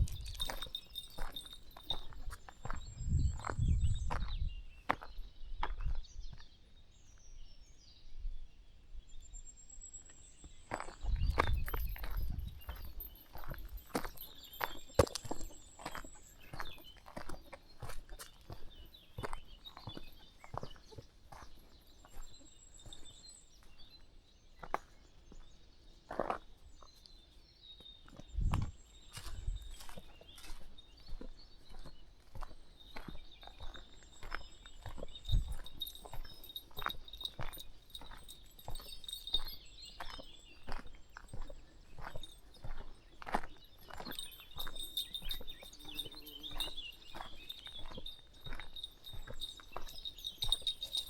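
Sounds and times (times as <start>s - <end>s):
footsteps on a path: 0.0s - 6.5s, 10.4s - 24.0s, 24.6s - 51.0s
small bird chirping: 0.0s - 6.6s, 9.1s - 51.0s
low rumble on microphone: 2.9s - 4.4s.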